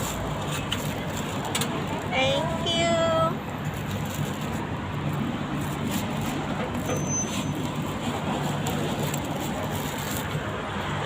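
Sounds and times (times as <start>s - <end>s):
street traffic hum: 0.0s - 11.0s.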